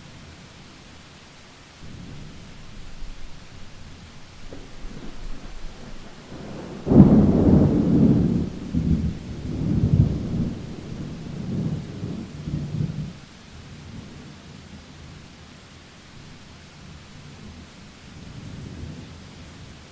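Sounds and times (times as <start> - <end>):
steady rain: 0.0 - 19.9
thunderclap rolling: 1.8 - 13.2.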